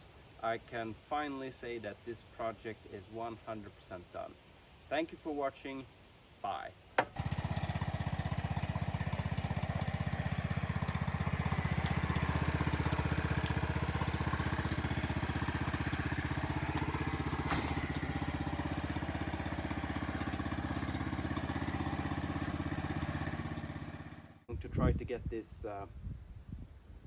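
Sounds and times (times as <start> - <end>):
small petrol engine running: 7.0 - 24.5.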